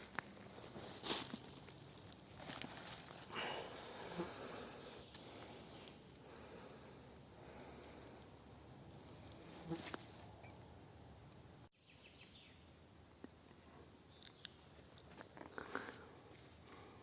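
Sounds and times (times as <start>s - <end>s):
person breathing hard: 3.3s - 8.4s.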